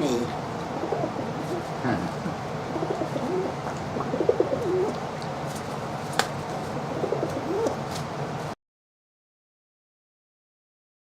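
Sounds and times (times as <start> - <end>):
pigeon cooing: 0.0 - 5.1, 6.7 - 7.8.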